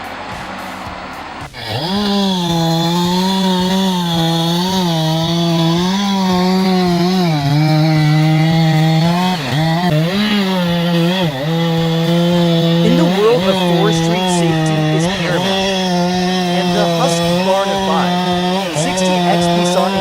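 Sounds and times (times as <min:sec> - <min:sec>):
chainsaw cutting wood: 0:00.0 - 0:20.0.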